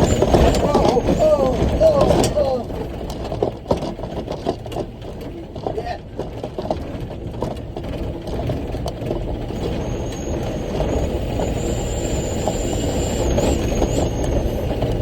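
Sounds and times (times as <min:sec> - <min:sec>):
knocks and rattles: 0:00.0 - 0:09.9
truck engine rumble: 0:00.0 - 0:15.0
thin high whine: 0:09.6 - 0:15.0.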